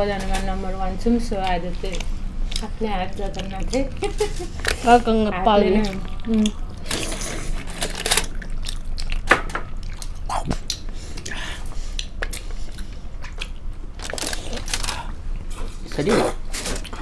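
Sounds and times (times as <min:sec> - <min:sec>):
wet chewing smacks and clicks: 0:01.3 - 0:04.8, 0:08.2 - 0:15.5.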